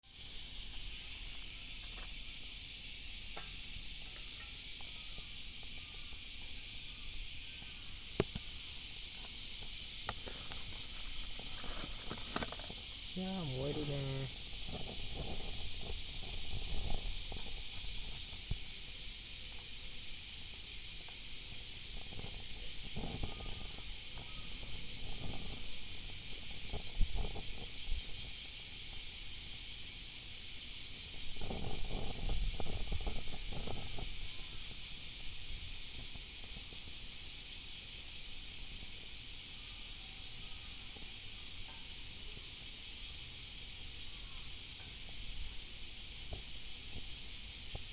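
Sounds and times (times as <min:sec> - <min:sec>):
steady high hiss: 0:00.0 - 0:47.9
rustling: 0:07.6 - 0:19.0.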